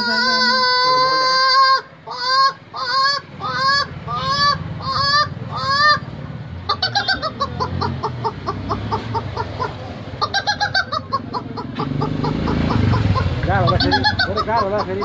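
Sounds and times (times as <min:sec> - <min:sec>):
woman imitating chicken calls: 0:00.0 - 0:05.9.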